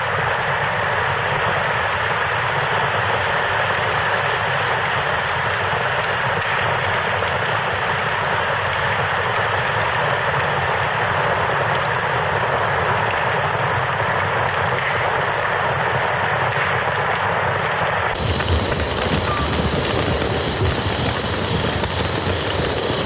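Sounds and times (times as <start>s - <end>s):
campfire crackling: 18.1s - 23.0s
river rushing water: 18.1s - 23.0s.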